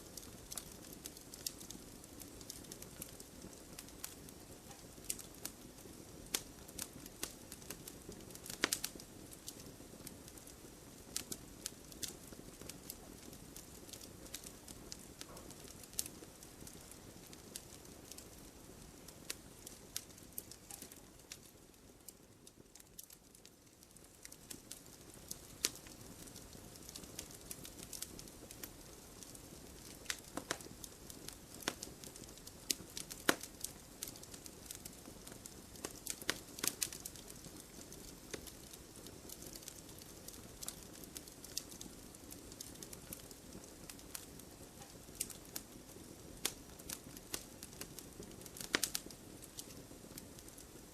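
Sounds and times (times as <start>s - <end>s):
burning logs popping and snapping: 0.0s - 50.9s
fire soft steady rush: 0.0s - 50.9s.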